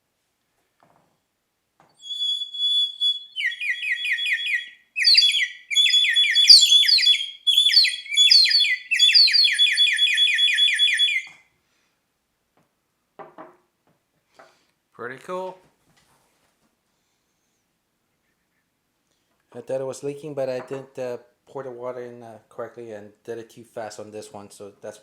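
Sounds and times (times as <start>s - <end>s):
water bird-call whistle trilling: 2.0s - 11.3s.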